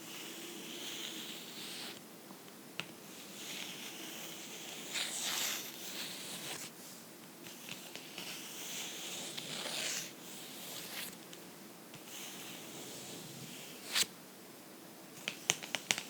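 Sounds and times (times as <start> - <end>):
fingernails scratching a book: 0.1 - 2.0, 3.1 - 6.7, 7.5 - 11.2.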